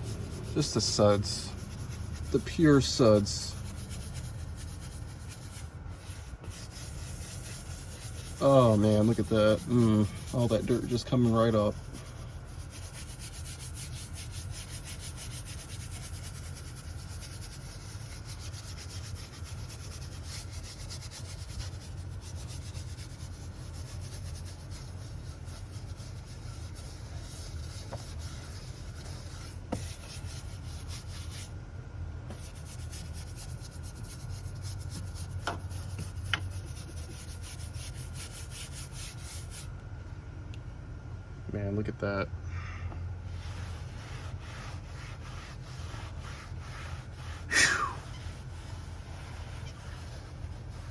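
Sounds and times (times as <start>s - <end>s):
rapid scrubbing of sudsy surface: 0.0s - 31.5s, 32.3s - 39.7s, 43.3s - 50.9s.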